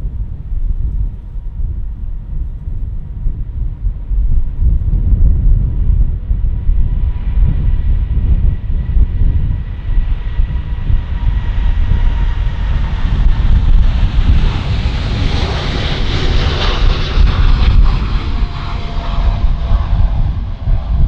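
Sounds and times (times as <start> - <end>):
jet engines with whine: 0.0 - 21.0
wind rumble on microphone: 0.0 - 21.0.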